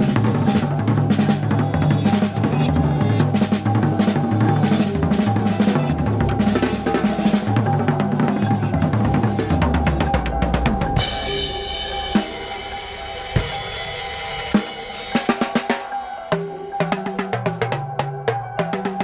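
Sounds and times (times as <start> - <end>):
steady held tone: 0.0 - 17.4
drum kit playing: 0.0 - 19.0
low pitched notes: 0.0 - 19.0
ringing cymbal wash: 10.3 - 16.9.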